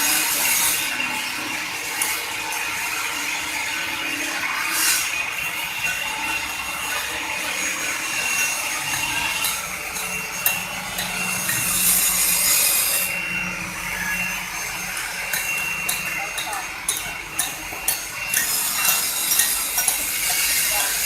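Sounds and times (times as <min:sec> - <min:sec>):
cutter grinding into stone: 0:00.0 - 0:21.0
low motor hum: 0:05.0 - 0:21.0.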